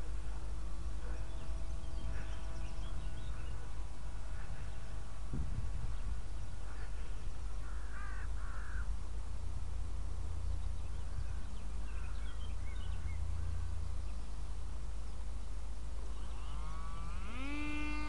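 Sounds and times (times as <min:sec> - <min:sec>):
bird calls: 0:01.0 - 0:05.0, 0:05.9 - 0:08.9, 0:10.4 - 0:15.3, 0:16.1 - 0:18.0.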